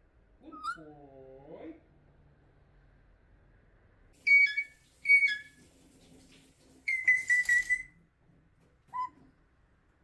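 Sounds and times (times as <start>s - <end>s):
parrot whistled calls: 4.3s - 5.5s.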